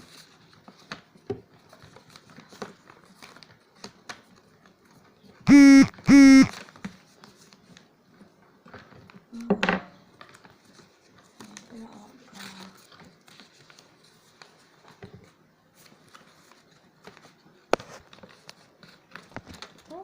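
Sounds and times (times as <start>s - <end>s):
paper rustling and tapping: 0.1s - 4.8s, 12.8s - 20.0s
short pitched tones: 5.5s - 6.5s.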